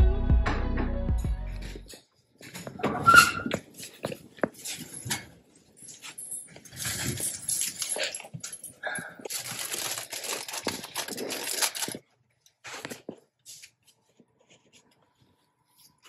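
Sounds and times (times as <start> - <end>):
wrapping material crinkling: 5.8 - 16.0.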